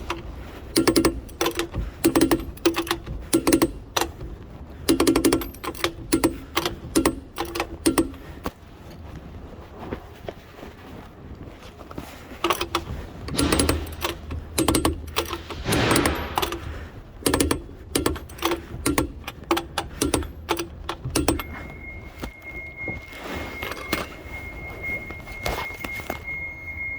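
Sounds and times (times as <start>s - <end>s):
metal tools clinking: 0.0s - 9.0s, 12.3s - 26.9s
faint high whine: 21.4s - 26.9s.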